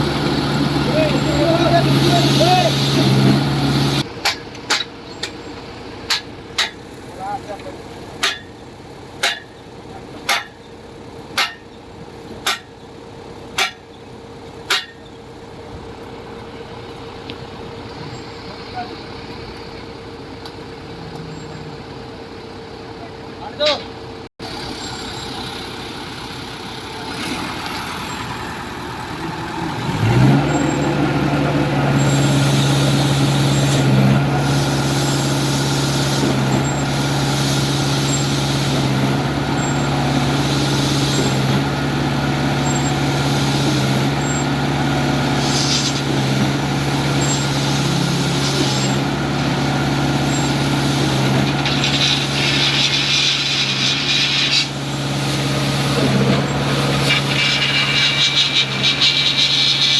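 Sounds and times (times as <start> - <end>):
loud hiss: 0.0 - 4.0, 31.9 - 44.6, 45.2 - 59.9
concrete pump diesel engine: 0.0 - 59.9
pump swishing: 50.0 - 59.9.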